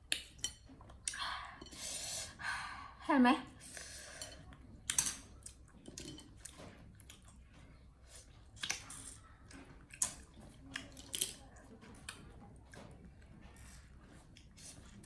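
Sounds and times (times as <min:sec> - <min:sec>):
monkeys chewing food: 0:03.6 - 0:15.0.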